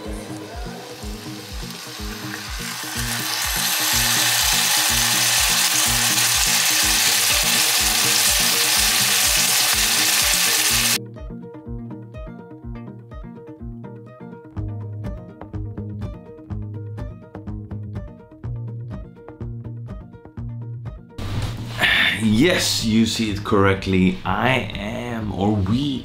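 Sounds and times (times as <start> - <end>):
chicken sizzling in hot oil: 0.0 - 11.0
background music with steady beat: 0.0 - 26.0.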